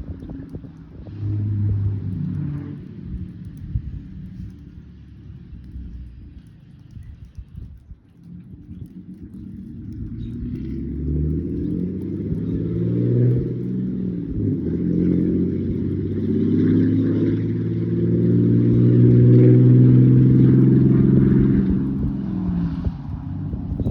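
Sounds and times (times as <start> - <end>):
truck engine revving: 1.0 - 3.3, 9.9 - 23.9.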